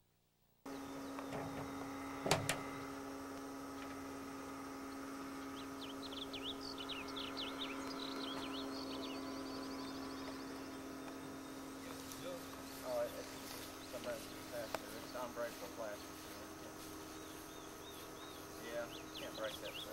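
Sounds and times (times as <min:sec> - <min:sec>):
steady low hum: 0:00.6 - 0:19.9
bird chirping and trilling: 0:05.4 - 0:11.8, 0:17.1 - 0:19.9.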